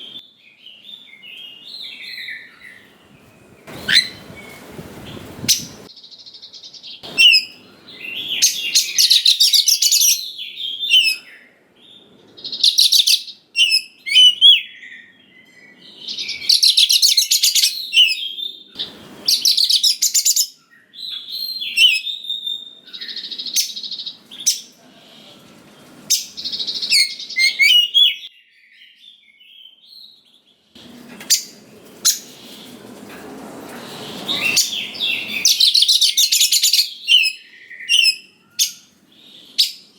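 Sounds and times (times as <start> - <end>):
bird singing whistles and chatter: 3.6 - 5.9, 6.9 - 11.6, 12.4 - 24.8, 26.1 - 29.0, 34.0 - 39.9.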